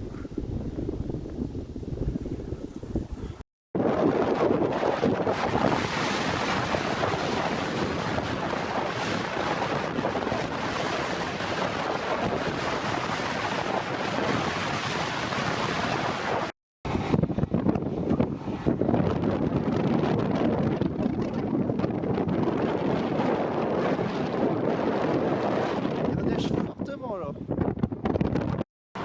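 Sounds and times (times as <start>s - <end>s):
blizzard wind on microphone: 0.0s - 29.0s.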